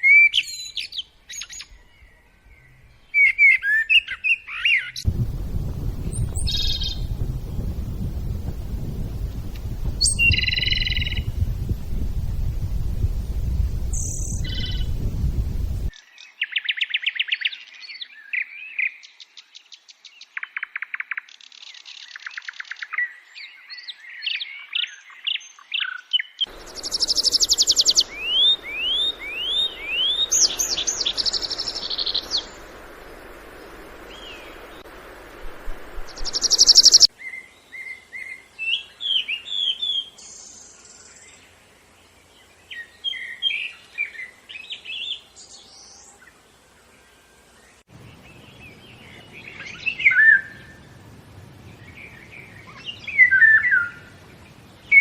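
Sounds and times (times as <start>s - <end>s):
songbirds chirping and trilling: 0.0s - 35.3s, 36.0s - 55.0s
low background noise: 26.5s - 55.0s.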